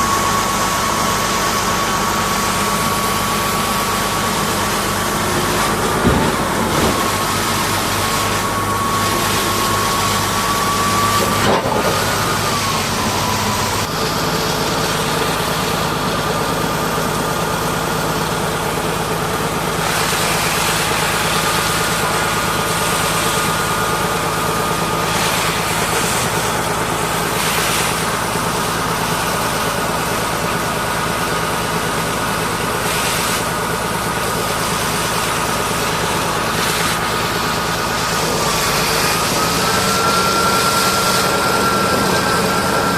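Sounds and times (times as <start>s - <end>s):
high whine: 0.0s - 28.9s
engine running: 0.0s - 42.9s.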